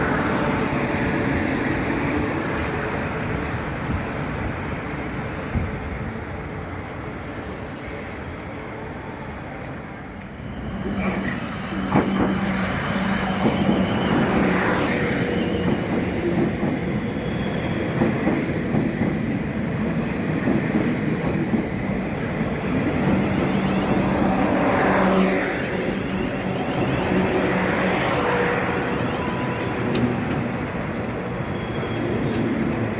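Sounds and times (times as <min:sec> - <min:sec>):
train wheels rumbling on rails: 0:09.6 - 0:32.9.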